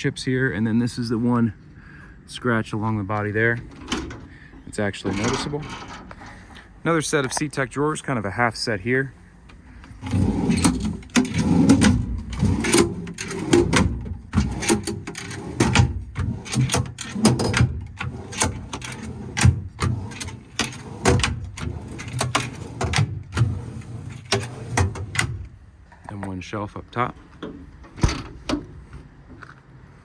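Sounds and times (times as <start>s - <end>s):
metal drawers sliding open and shut: 3.4s - 6.6s, 9.5s - 25.6s, 27.2s - 29.1s
drawer latches clicking and clattering: 3.6s - 4.3s, 5.0s - 6.2s, 9.8s - 25.6s.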